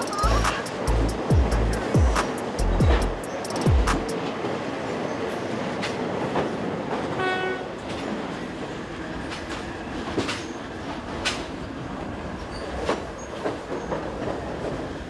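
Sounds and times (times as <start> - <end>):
wheels rumbling on rails: 0.0 - 15.0
train horn: 7.1 - 7.8
clacks over rail joints: 9.2 - 11.6, 12.5 - 15.0.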